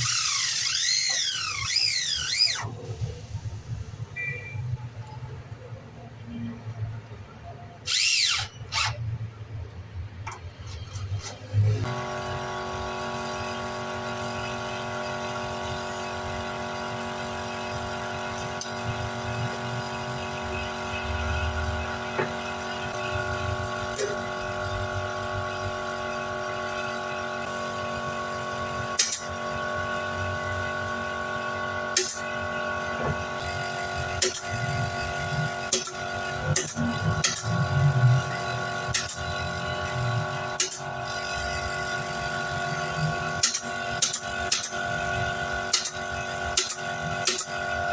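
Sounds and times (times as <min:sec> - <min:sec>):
power tool motor humming: 0:00.0 - 0:03.0, 0:07.9 - 0:09.0.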